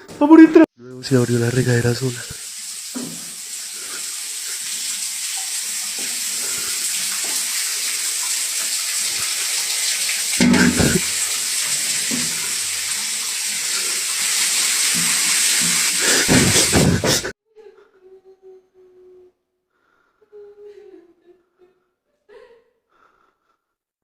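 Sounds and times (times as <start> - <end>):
shower spray hissing: 1.0 - 17.3
loud thump or cry: 16.3 - 17.2.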